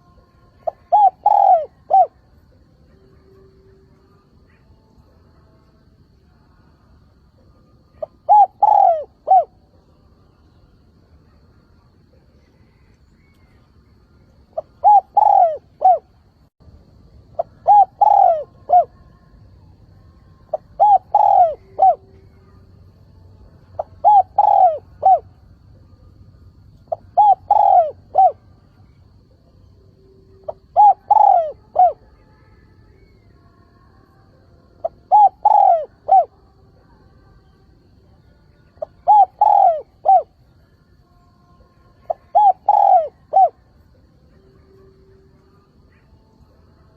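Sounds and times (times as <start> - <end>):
dove cooing: 0.0 - 2.4, 7.8 - 9.8, 14.4 - 16.2, 17.3 - 19.1, 20.5 - 22.6, 23.8 - 25.5, 26.8 - 28.5, 30.3 - 32.2, 34.8 - 36.4, 38.8 - 40.4, 42.0 - 43.6.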